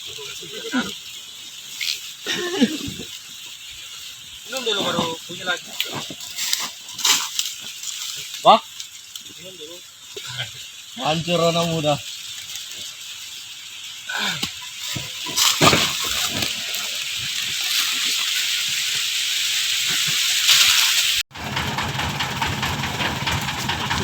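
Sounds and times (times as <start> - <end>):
steady rushing hiss: 0.0 - 21.2
engine humming and ticking: 21.3 - 24.0.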